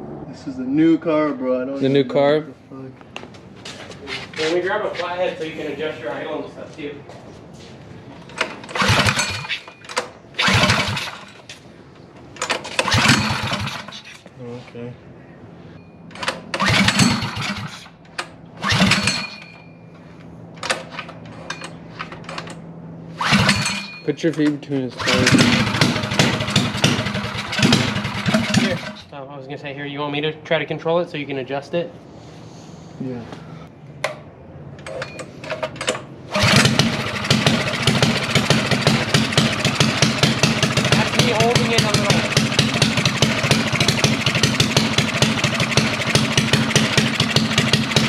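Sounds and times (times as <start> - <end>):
minibike engine idling and revving: 8.2 - 11.5, 12.6 - 14.3, 16.4 - 19.6, 22.3 - 24.2, 24.8 - 29.1, 36.3 - 48.0.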